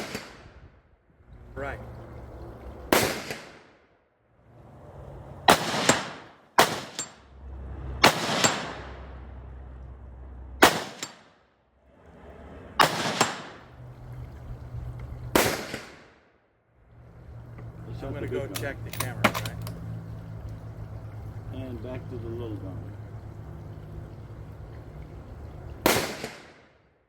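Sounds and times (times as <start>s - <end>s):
rifle shots: 0.0s - 0.5s, 2.9s - 3.8s, 5.5s - 7.2s, 8.0s - 9.0s, 10.6s - 11.3s, 12.8s - 13.6s, 15.3s - 16.2s, 25.8s - 26.8s.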